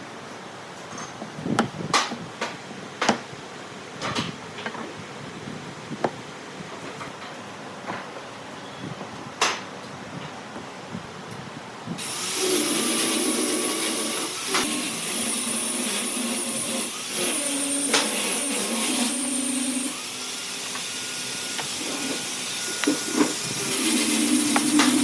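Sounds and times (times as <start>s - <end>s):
workshop machine hissing: 12.0s - 25.0s.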